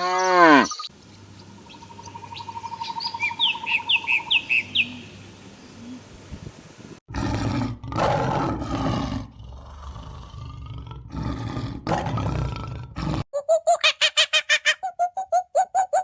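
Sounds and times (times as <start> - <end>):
large animal roaring: 7.1 - 13.2.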